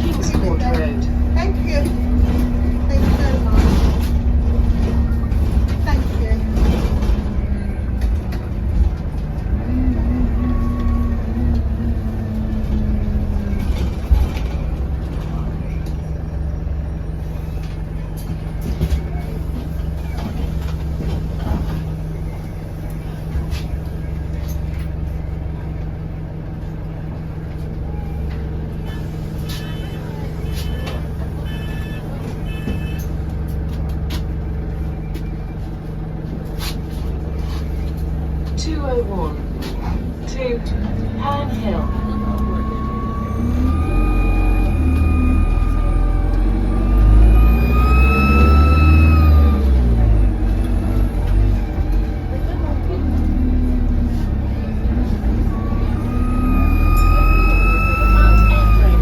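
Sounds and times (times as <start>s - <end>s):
bus engine rumbling: 0.0s - 59.0s
brief higher whine: 41.8s - 49.7s, 55.4s - 59.0s.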